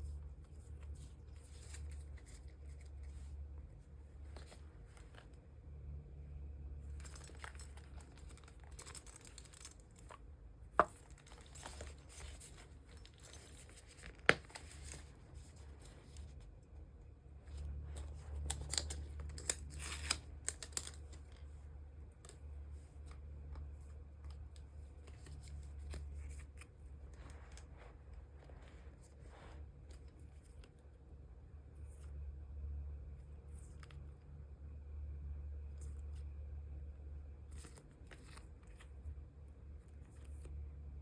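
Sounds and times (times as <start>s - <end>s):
plastic sleeves crinkling: 10.8s - 16.4s, 17.5s - 21.6s.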